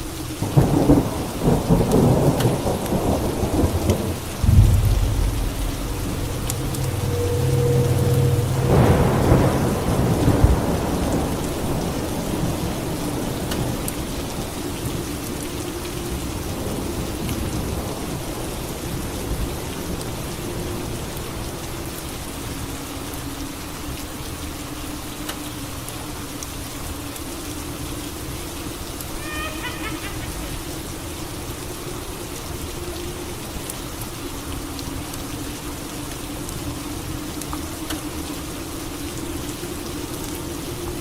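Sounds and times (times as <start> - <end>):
steady rain: 0.0 - 41.0
thunder rumbling: 0.4 - 14.1, 29.2 - 31.7.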